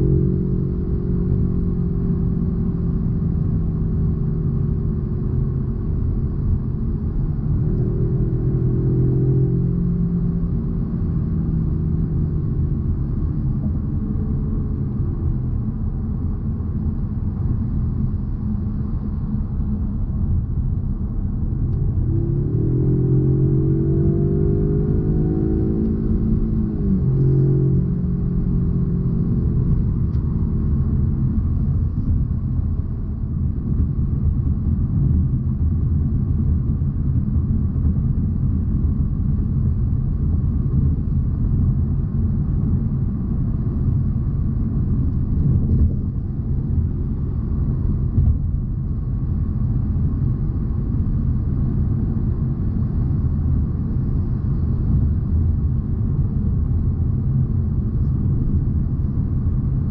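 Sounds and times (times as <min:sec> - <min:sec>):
car tyres and engine rumble: 0:00.0 - 0:59.9.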